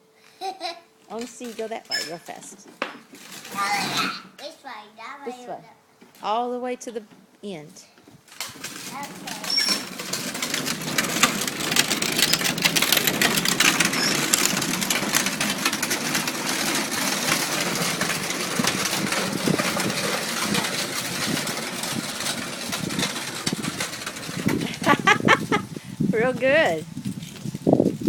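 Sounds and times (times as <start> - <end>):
toy tractor motor rattling: 3.1 - 4.5, 8.3 - 25.8.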